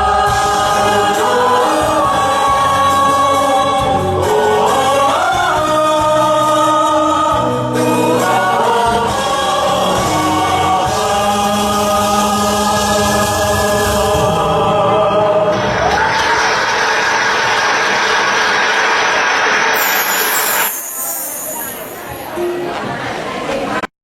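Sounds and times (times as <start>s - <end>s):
group of voices singing: 0.0s - 16.5s.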